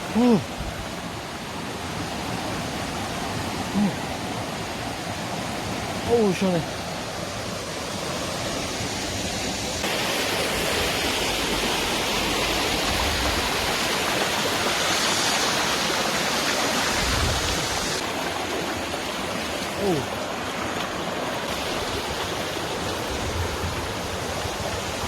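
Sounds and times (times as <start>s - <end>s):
water rushing over rocks: 0.0s - 25.0s.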